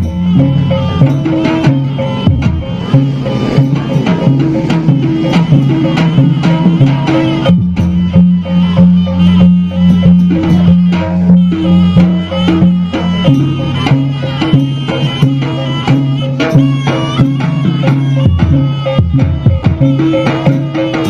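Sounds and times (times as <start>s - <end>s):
percussion ensemble playing: 0.0s - 21.0s.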